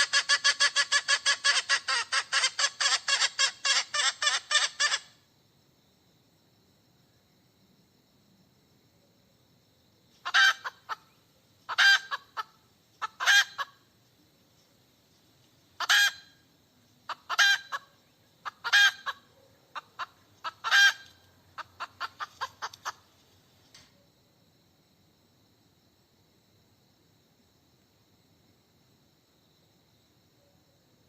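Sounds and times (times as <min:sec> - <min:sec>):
hen clucking: 0:00.0 - 0:05.1, 0:10.2 - 0:11.0, 0:11.7 - 0:13.8, 0:15.8 - 0:16.3, 0:17.1 - 0:19.2, 0:19.8 - 0:23.1
hen cackling: 0:00.0 - 0:05.2, 0:10.2 - 0:13.9, 0:15.8 - 0:16.4, 0:17.1 - 0:23.1.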